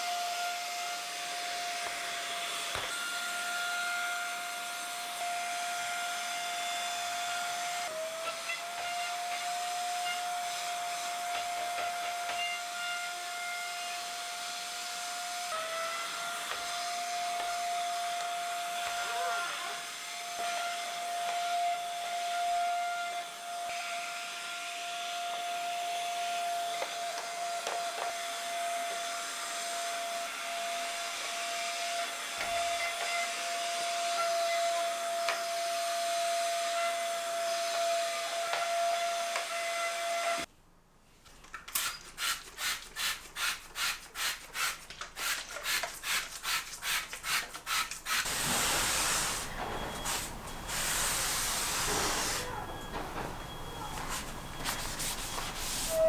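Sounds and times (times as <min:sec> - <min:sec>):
mini vacuum whining: 0:00.0 - 0:40.5, 0:48.0 - 0:56.0
rubbing strokes: 0:42.2 - 0:56.0
steady hiss: 0:48.0 - 0:56.0.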